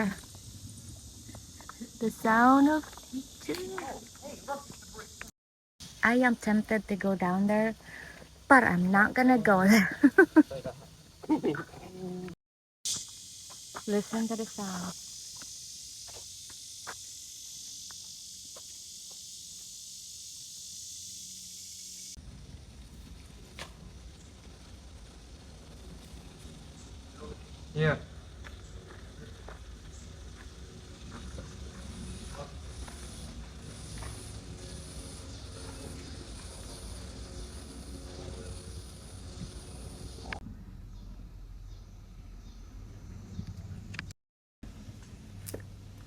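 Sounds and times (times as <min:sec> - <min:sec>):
insects droning: 0:00.0 - 0:44.0
high buzz: 0:29.5 - 0:40.4.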